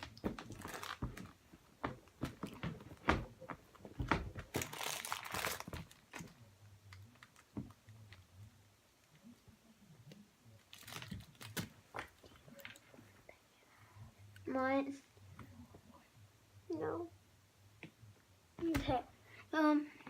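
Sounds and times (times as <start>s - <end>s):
toys rustling and crinkling: 0.0s - 8.3s, 10.6s - 13.1s.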